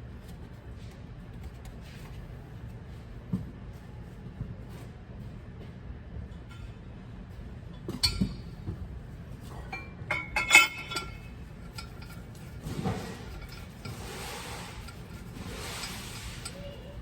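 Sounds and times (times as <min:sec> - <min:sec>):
metal tools clinking: 0:09.7 - 0:14.1.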